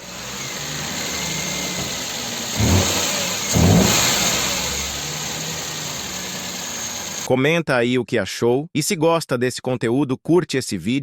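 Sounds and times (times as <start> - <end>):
car engine revving: 0.0 - 7.3.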